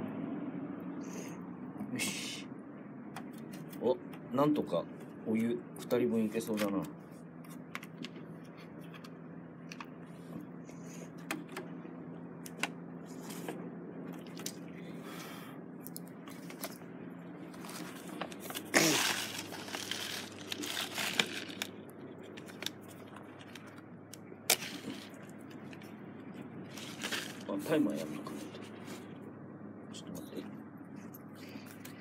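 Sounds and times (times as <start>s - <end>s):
crinkly packaging rustling: 17.4s - 23.9s, 24.5s - 25.8s, 26.7s - 29.1s.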